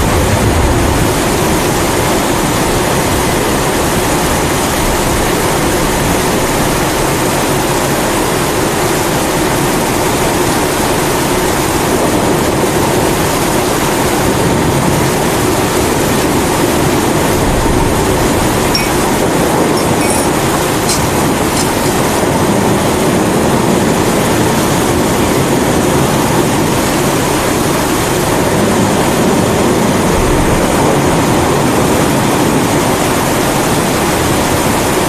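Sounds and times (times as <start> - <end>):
rain hissing: 0.0 - 35.0
stove burner roaring: 15.8 - 23.5.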